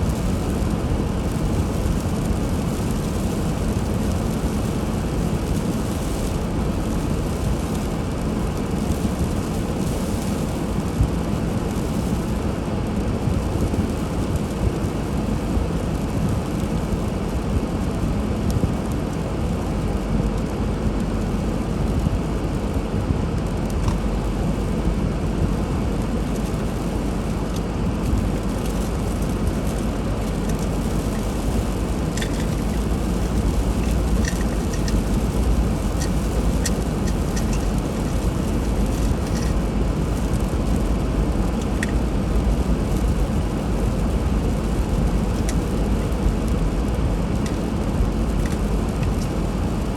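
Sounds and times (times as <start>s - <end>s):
car engine and tyres rumbling: 0.0s - 49.9s
faint ticks: 30.4s - 39.6s.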